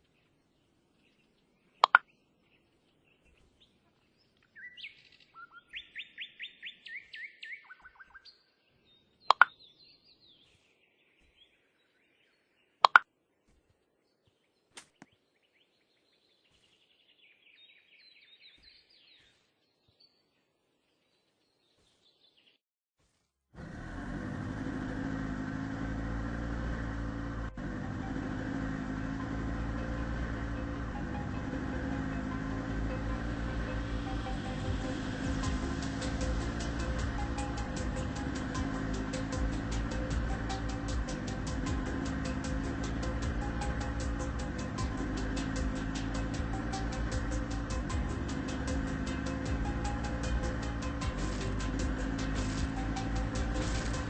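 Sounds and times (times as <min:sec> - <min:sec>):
bird-like chirping trills: 0:01.0 - 0:13.1
sharp clicks: 0:01.8 - 0:02.1.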